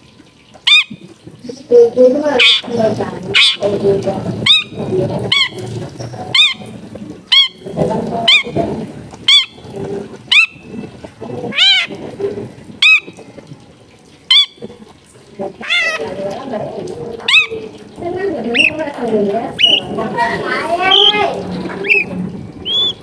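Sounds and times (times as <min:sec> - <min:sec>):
bird giving sharp calls: 0:00.7 - 0:01.0, 0:02.3 - 0:03.8, 0:04.4 - 0:08.6, 0:09.2 - 0:09.7, 0:10.3 - 0:10.9, 0:11.5 - 0:12.1, 0:12.8 - 0:13.2, 0:14.3 - 0:14.7, 0:15.6 - 0:16.3, 0:17.2 - 0:23.0
murmur of background noise: 0:00.9 - 0:23.0.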